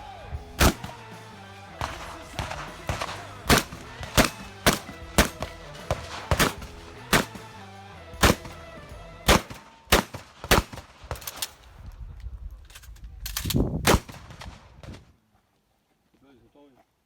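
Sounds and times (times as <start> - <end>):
background music: 0.0 - 11.0
shotgun shots: 0.6 - 1.1, 1.8 - 7.6, 8.2 - 11.6, 13.8 - 15.0.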